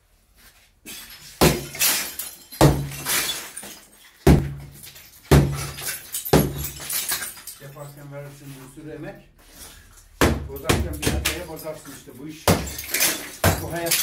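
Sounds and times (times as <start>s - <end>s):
broken pieces rattling down: 1.0s - 7.9s, 10.9s - 14.0s
heavy blows on masonry: 5.3s - 6.8s.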